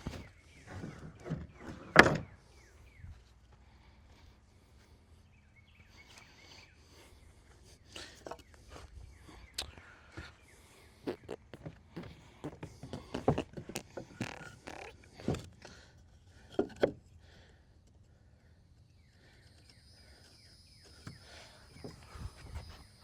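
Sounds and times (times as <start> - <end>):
wood knocks and thumps: 0.0 - 2.3, 11.5 - 15.8, 16.4 - 17.0.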